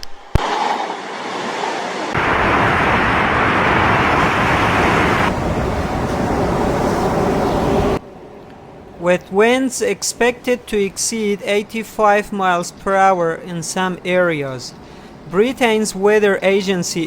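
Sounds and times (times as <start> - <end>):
storm wind: 0.0 - 17.0
rushing water: 0.4 - 8.0.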